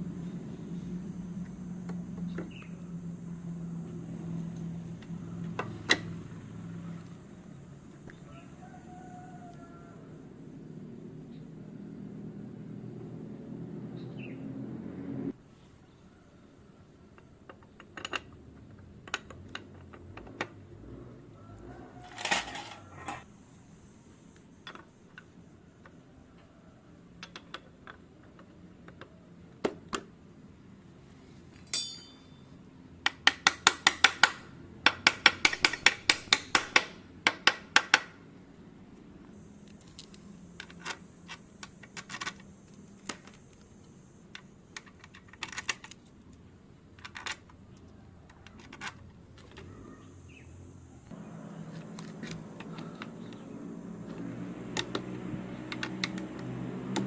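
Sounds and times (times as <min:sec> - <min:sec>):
low background noise: 0:00.0 - 0:54.6
metal tools clinking: 0:22.0 - 0:23.2, 0:31.7 - 0:32.6, 0:42.0 - 0:43.6.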